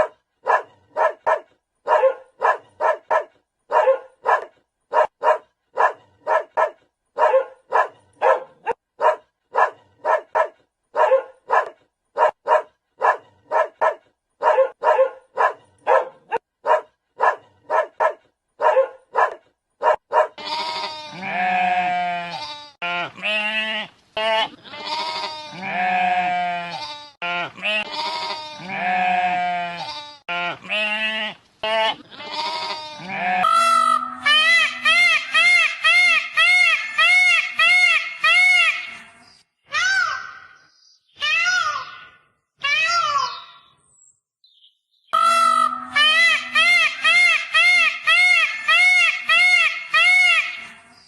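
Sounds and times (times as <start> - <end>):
dog barking: 0.0 - 20.4
long drawn-out bleats: 20.4 - 34.9.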